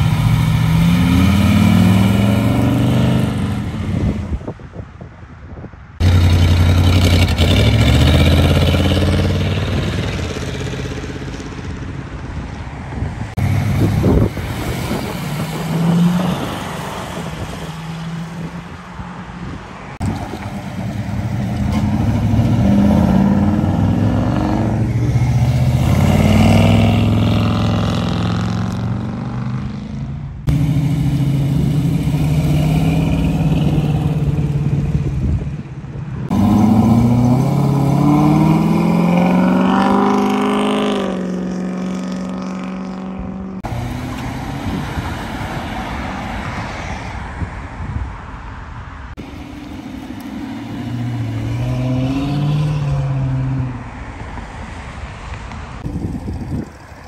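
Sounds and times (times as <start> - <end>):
cars accelerating away: 0.0 - 4.3, 6.0 - 11.4, 13.3 - 18.6, 20.0 - 35.1, 36.3 - 46.8, 49.1 - 53.9
passing road traffic: 0.0 - 57.0.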